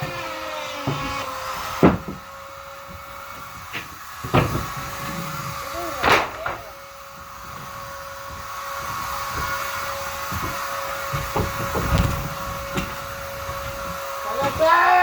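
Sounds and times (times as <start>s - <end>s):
vacuum cleaner running: 0.0s - 15.0s
vacuum knocking and clicking: 7.2s - 14.7s.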